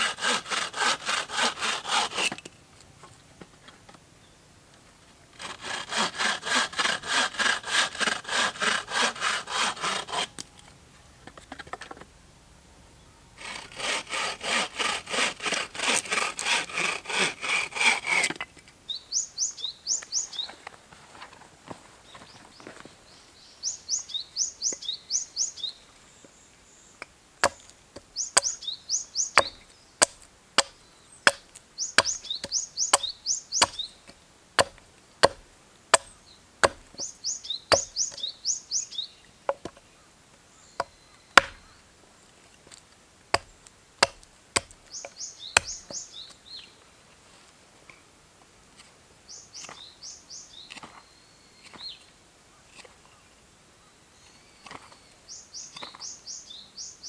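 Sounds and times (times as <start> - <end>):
songbird singing: 2.5 - 5.4, 10.3 - 13.4, 18.6 - 47.2, 49.2 - 57.0
wood being chopped: 27.4 - 28.6, 29.4 - 37.1, 37.7 - 38.2, 40.8 - 41.7, 43.3 - 46.0.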